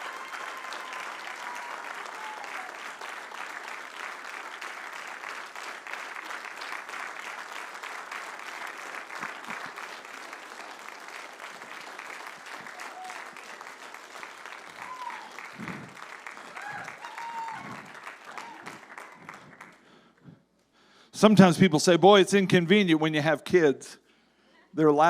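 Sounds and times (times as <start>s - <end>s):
crowd applauding: 0.0s - 20.1s.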